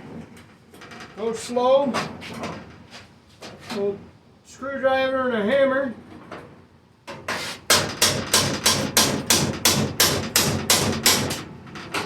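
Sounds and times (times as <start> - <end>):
hammer striking screwdriver on sheet metal: 7.3 - 11.4.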